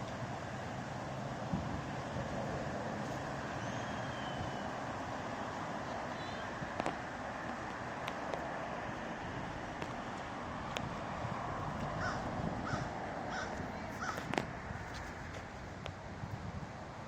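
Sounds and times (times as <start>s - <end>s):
crow cawing: 12.0s - 14.2s.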